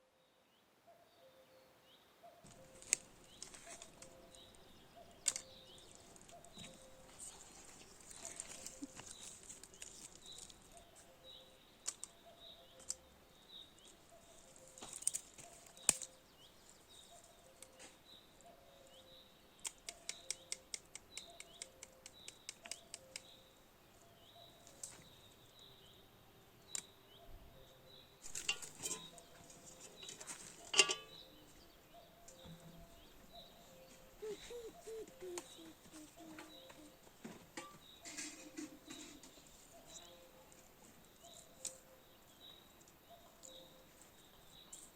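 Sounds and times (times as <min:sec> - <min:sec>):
small bird chirping: 0:02.4 - 0:37.1.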